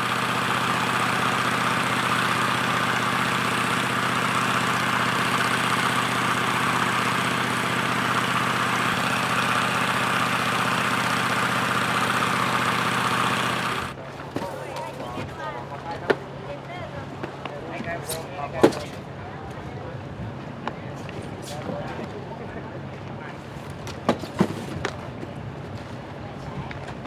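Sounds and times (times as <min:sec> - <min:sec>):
heavy engine running: 0:00.0 - 0:14.0.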